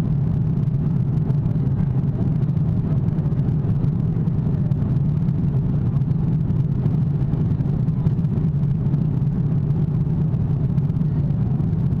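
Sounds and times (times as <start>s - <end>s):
aircraft cabin engine roar: 0.0s - 12.0s.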